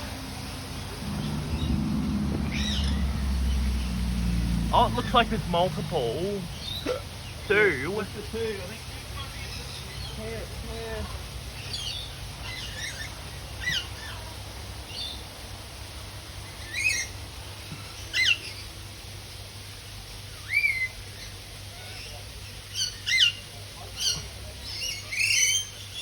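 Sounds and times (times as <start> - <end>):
birds squawking: 1.0 - 14.3.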